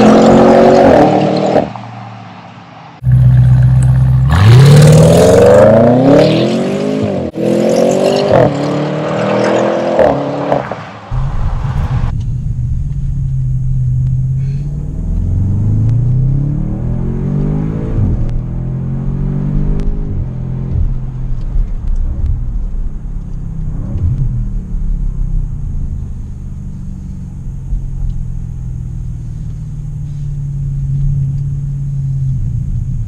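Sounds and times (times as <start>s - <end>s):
car engine revving and idling: 3.0s - 33.0s.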